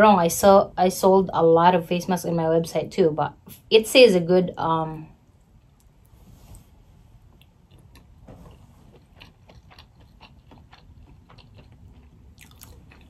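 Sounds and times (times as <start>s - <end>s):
person chewing with mouth clicks: 7.3s - 13.0s.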